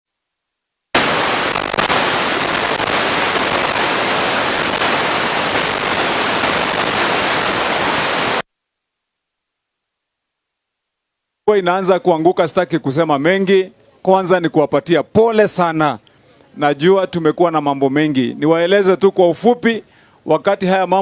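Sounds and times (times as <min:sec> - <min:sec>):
loud static hiss: 0:00.1 - 0:09.5.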